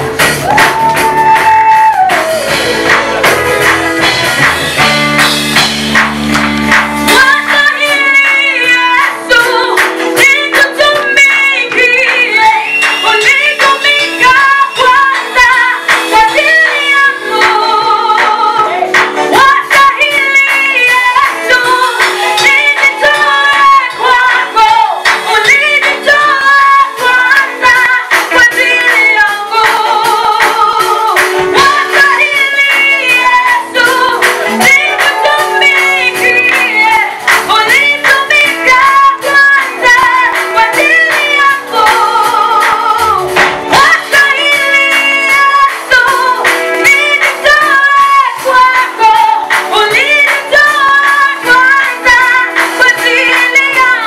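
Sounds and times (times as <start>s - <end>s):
steady rhythmic beat: 0.0s - 54.0s
vocal group singing gospel: 7.0s - 54.0s.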